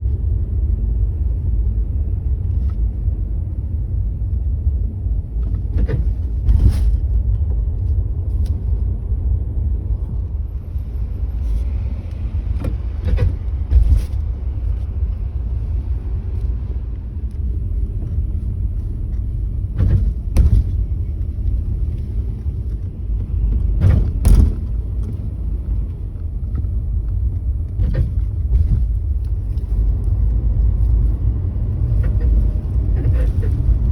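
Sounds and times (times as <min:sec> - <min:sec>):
car low rumble: 0:00.0 - 0:33.9
suspension creaking: 0:17.2 - 0:33.9.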